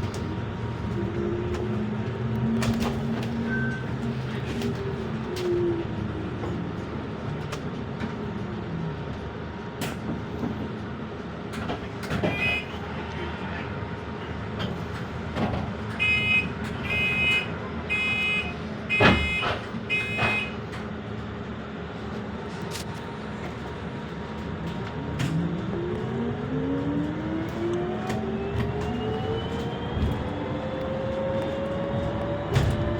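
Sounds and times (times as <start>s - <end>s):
bus pulling away: 0.0s - 32.9s
electronic warning beeps: 16.0s - 20.6s.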